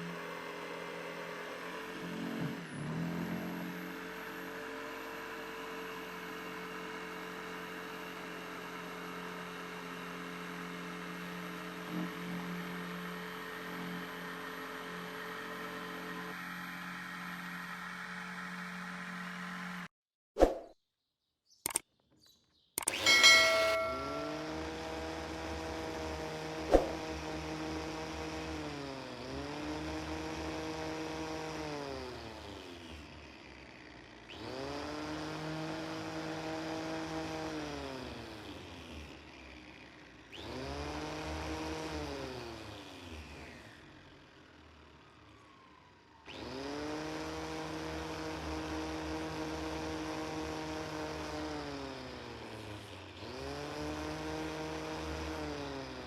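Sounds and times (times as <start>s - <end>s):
power tool motor whining: 22.8s - 56.0s.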